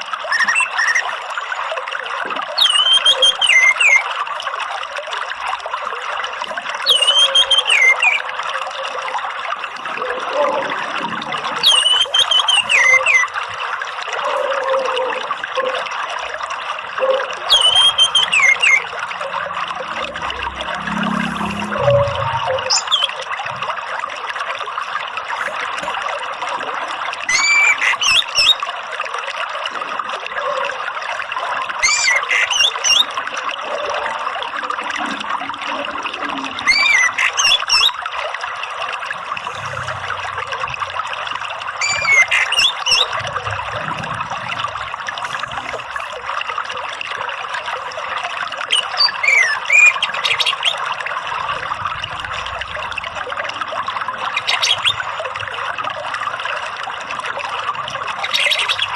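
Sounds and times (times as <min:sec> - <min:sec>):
running water: 0:00.0 - 0:58.9
thrush calls: 0:00.3 - 0:01.2, 0:02.6 - 0:04.1, 0:06.8 - 0:08.9, 0:09.6 - 0:15.9, 0:16.8 - 0:23.2, 0:27.3 - 0:28.6, 0:31.8 - 0:33.1, 0:36.4 - 0:38.0, 0:41.7 - 0:46.2, 0:48.7 - 0:50.8, 0:54.2 - 0:55.6.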